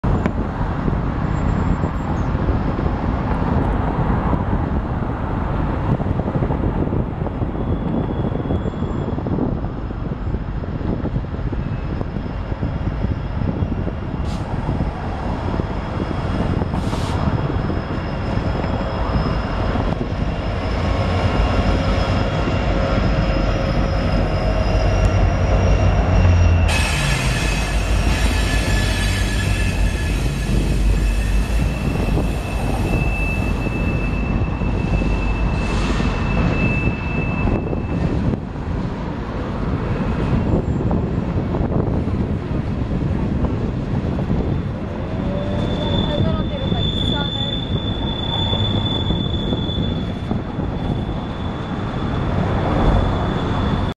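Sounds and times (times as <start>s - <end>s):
diesel train passing: 0.0s - 53.9s
high-pitched wheel squeals: 7.4s - 10.4s, 15.6s - 38.4s, 44.4s - 53.9s.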